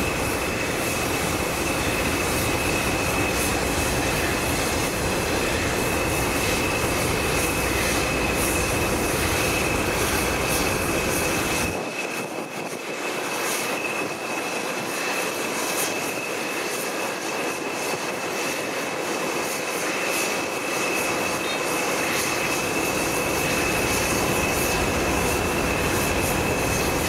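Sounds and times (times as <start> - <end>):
train rumble and rushing: 0.0 - 27.0.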